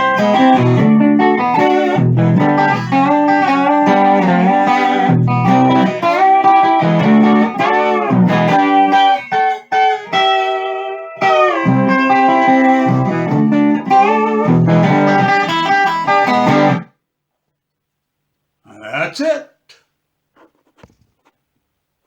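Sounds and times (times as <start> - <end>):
steel guitar sliding chords: 0.0 - 16.8.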